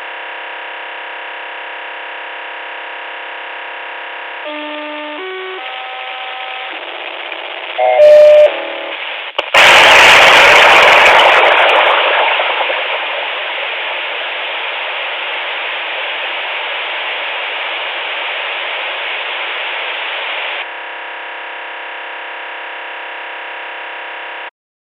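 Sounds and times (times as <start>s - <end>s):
multi-tone buzz: 0.3s - 11.2s, 14.0s - 24.5s
walkie-talkie static: 4.4s - 20.7s.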